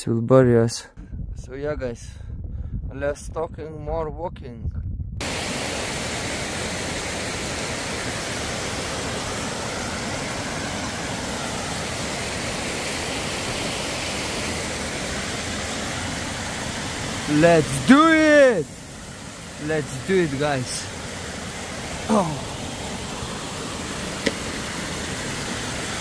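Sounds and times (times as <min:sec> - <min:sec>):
wind blowing across microphone: 0:01.0 - 0:06.8.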